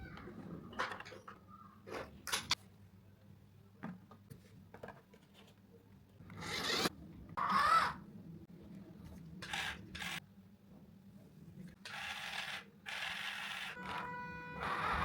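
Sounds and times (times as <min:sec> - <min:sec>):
rc truck scraping: 0:06.3 - 0:06.9
rc truck motor whine: 0:11.9 - 0:15.0.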